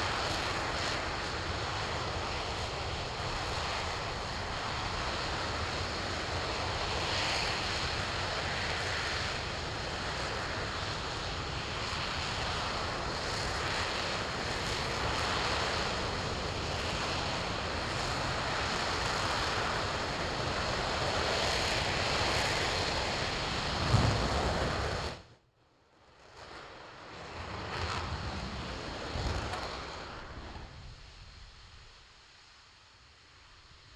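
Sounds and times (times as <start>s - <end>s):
rocket engine roaring: 14.2s - 25.3s, 26.2s - 31.2s
faint rushing noise: 23.4s - 25.3s.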